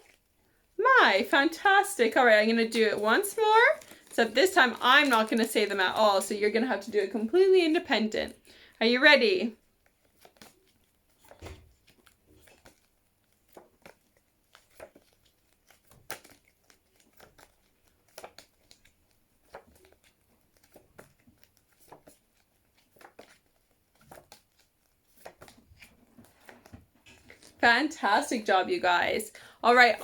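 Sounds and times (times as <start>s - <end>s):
paper rustling: 2.1s - 6.9s, 9.6s - 28.5s.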